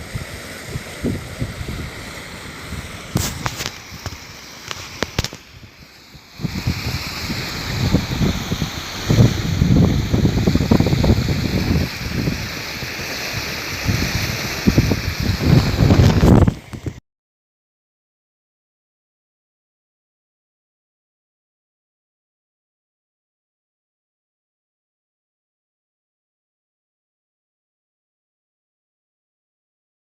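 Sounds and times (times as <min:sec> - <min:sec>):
steady outdoor hiss: 0:00.0 - 0:17.0
wind buffeting microphone: 0:00.0 - 0:17.0.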